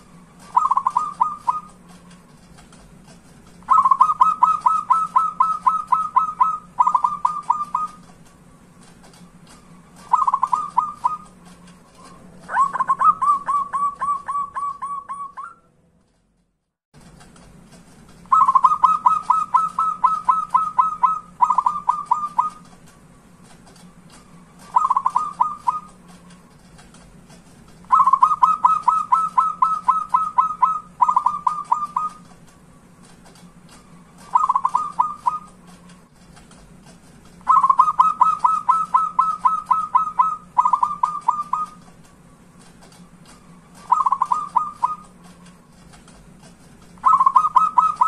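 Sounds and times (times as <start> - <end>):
steady low hum: 0.0 - 48.0
dove cooing in staccato notes: 0.4 - 2.2, 3.6 - 8.2, 9.2 - 15.5, 18.3 - 22.7, 24.5 - 26.2, 27.9 - 32.3, 33.8 - 35.7, 37.4 - 41.9, 43.1 - 45.3, 47.0 - 48.0.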